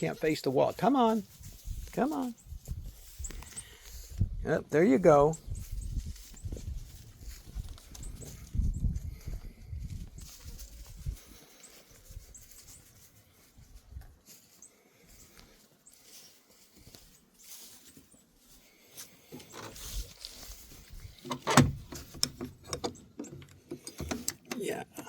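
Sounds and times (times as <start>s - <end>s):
light hoof steps: 0.0s - 25.0s
faint rustling: 5.6s - 24.5s
sharp knocks and clicks: 21.3s - 24.6s.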